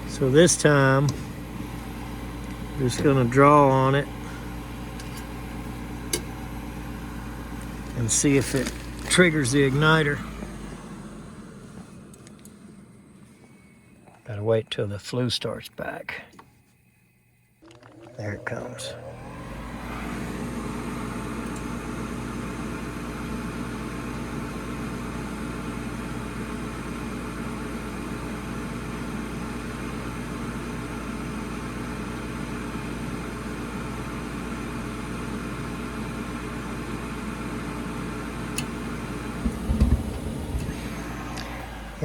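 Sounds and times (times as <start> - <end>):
furnace fan motor running: 0.0 - 14.5, 15.8 - 42.0
loud thumps: 39.4 - 41.8.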